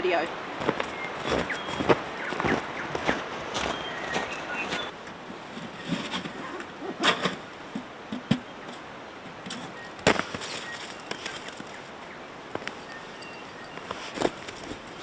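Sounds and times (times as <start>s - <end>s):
camping gear knocks and clicks: 4.2s - 11.8s, 12.5s - 15.0s
rustling of gear: 12.5s - 15.0s.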